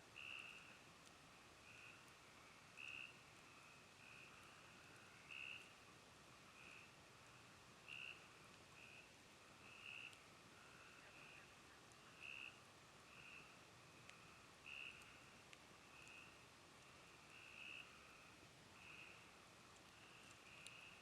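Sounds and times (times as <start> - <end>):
campfire crackling: 0.0 - 21.0
frogs trilling: 0.2 - 0.7, 2.8 - 5.7, 7.9 - 9.1, 9.7 - 15.3, 17.3 - 19.3.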